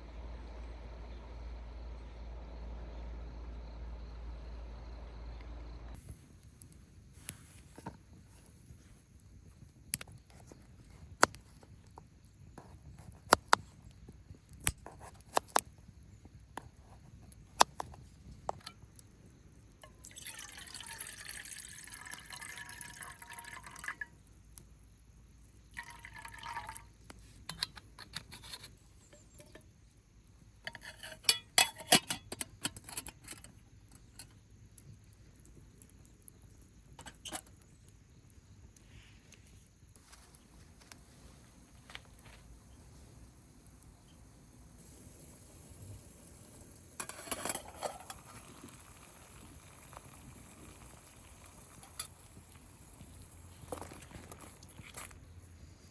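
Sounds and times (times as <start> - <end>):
liquid pouring into a cup: 19.9 - 24.1, 25.7 - 27.0.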